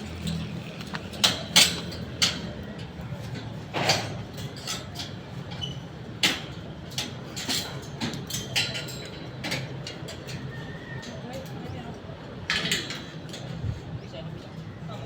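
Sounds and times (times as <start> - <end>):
construction knocks and clacks: 0.0 - 10.5.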